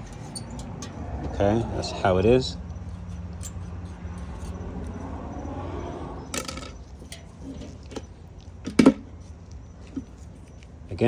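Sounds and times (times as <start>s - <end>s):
metal parts clicking and knocking: 0.0s - 1.4s, 2.8s - 5.0s, 6.4s - 10.6s.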